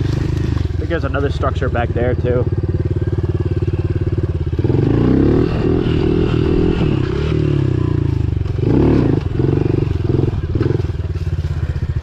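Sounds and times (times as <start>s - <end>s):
pit bike engine revving: 0.0s - 12.0s.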